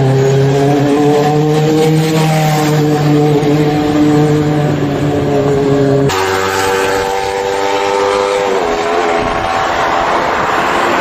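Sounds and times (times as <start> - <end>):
motorcycle engine at high revs: 0.0 - 11.0.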